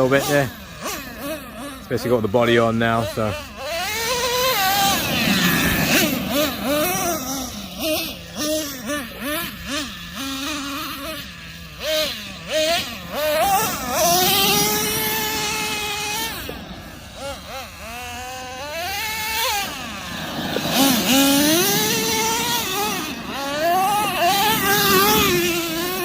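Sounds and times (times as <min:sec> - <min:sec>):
nitro engine revving: 0:00.0 - 0:26.0.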